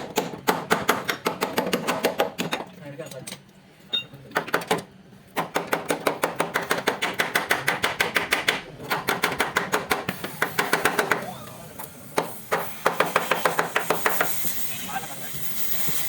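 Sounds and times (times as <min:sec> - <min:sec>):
hammer striking steel: 0:12.2 - 0:14.4.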